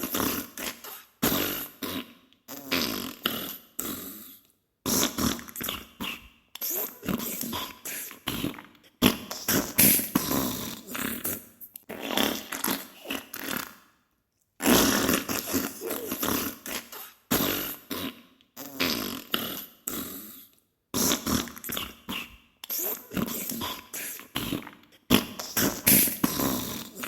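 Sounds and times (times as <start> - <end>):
wet fart noises: 4.9 - 13.8, 14.6 - 19.7, 21.0 - 23.8, 24.4 - 27.0.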